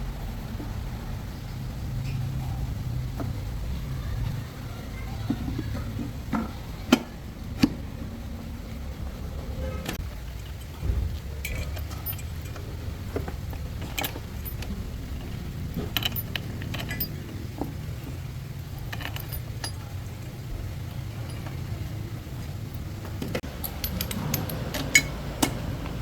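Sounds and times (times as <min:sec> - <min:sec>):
metal tools clinking: 0:09.8 - 0:26.0.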